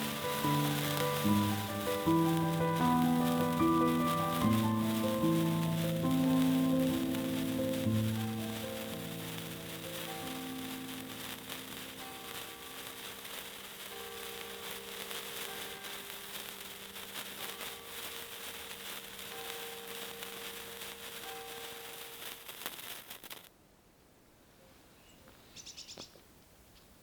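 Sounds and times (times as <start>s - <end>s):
soft background music: 0.0s - 12.8s
crackling hiss: 0.0s - 23.8s.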